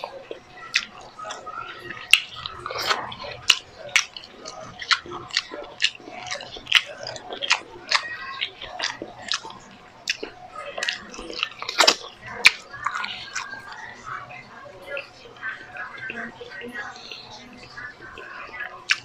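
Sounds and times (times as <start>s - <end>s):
man chewing: 0.0s - 13.9s, 18.2s - 19.0s.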